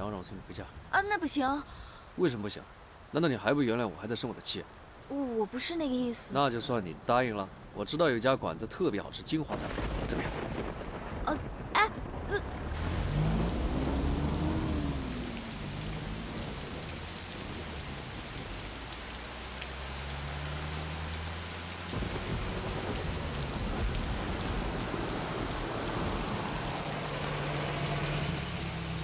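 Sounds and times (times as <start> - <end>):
heavy rain pouring: 0.0 - 29.0
car engine humming: 12.2 - 29.0.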